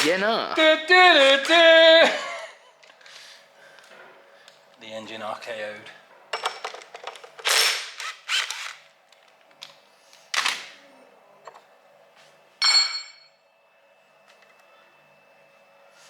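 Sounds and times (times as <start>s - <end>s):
metal tool clinking down: 12.6s - 13.3s.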